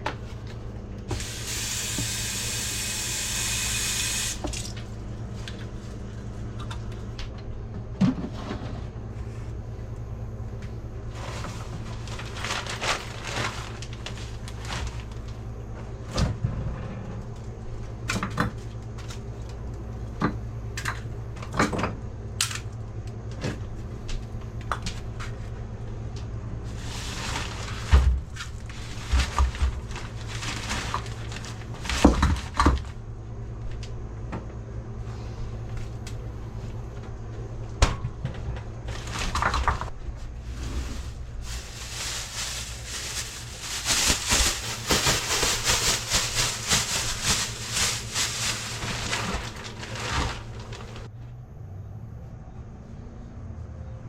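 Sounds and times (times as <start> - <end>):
steady low hum: 4.3 - 54.0
rustling: 11.1 - 15.4, 26.7 - 32.5, 40.2 - 51.1.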